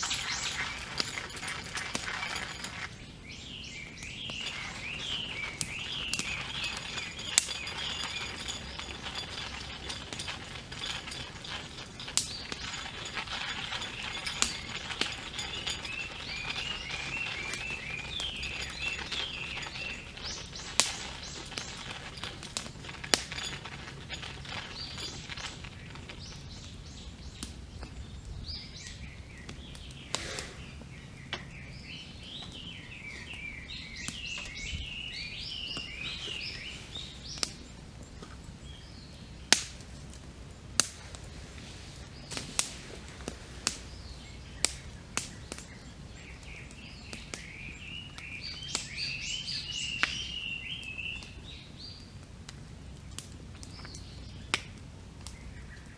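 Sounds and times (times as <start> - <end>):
campfire crackling and popping: 0.0 - 32.7, 36.7 - 55.9
songbirds twittering: 0.0 - 55.9.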